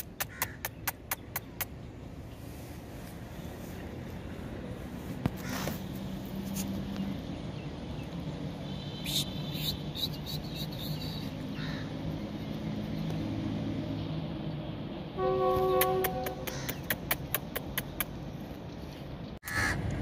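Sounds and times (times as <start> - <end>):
low train hum: 11.8 - 17.3.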